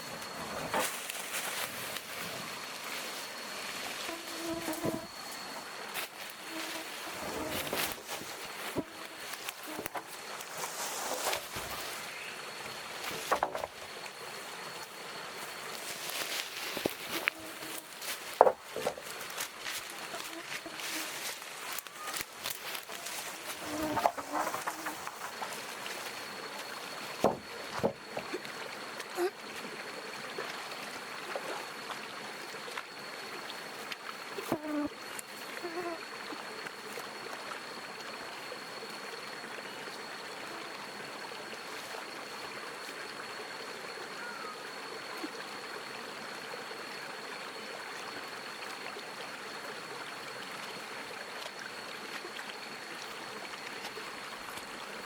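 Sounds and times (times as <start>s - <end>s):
flowing water rushing: 0.0s - 34.4s.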